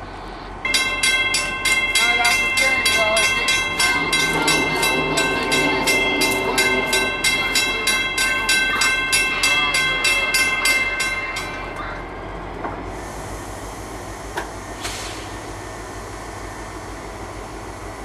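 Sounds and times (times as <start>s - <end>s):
slow train rumble: 0.0s - 18.0s
train bell ringing: 0.6s - 12.6s.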